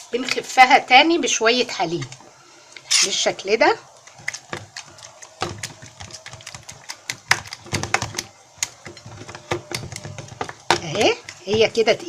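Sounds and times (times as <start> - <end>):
fork beating batter in a bowl: 4.0 - 12.0.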